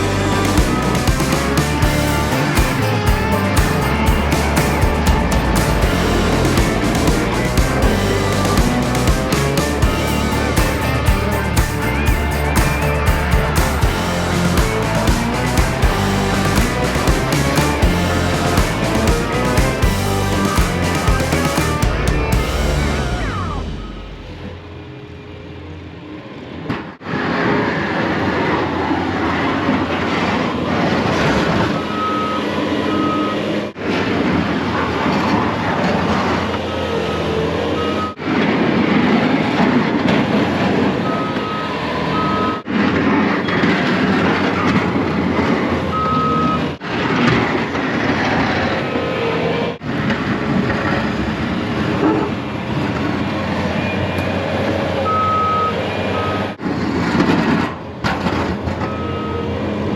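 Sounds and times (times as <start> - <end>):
truck engine running: 0.0 - 24.9
reversing alarm beeps: 31.7 - 33.6, 37.1 - 38.2, 41.0 - 42.7, 45.8 - 46.8, 55.1 - 56.6, 58.8 - 59.6.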